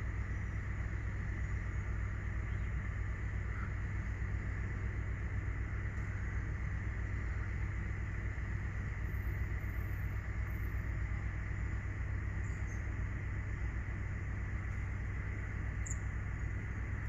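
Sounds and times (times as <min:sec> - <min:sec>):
jet engines low rumble: 0:00.0 - 0:17.0.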